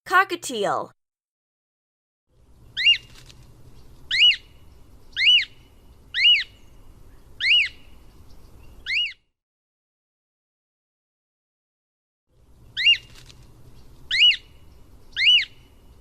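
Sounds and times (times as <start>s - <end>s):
cockatiel calling: 2.8s - 3.1s, 4.1s - 4.5s, 5.2s - 5.6s, 6.2s - 6.6s, 7.4s - 7.8s, 8.8s - 9.2s, 12.8s - 13.1s, 14.1s - 14.5s, 15.2s - 15.6s.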